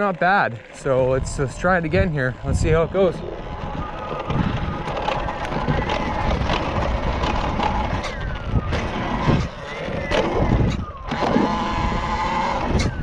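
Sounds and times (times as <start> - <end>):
electric motor whining: 0.0 - 13.0
wind and tyres on dirt: 0.0 - 13.0.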